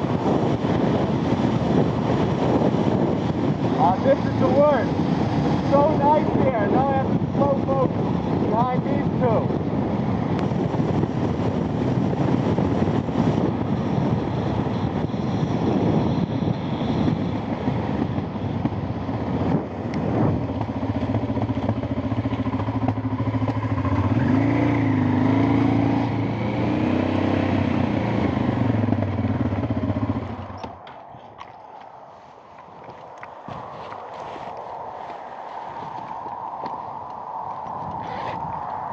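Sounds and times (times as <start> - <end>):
motorcycle engine running: 0.0 - 31.2
road noise: 0.0 - 38.9
wind noise: 0.0 - 38.9.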